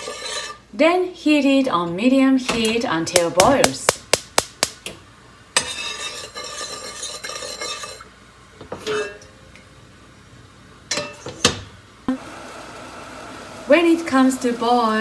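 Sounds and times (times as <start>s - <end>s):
utensil stirring liquid in a pot: 0.0s - 0.7s, 5.6s - 8.2s.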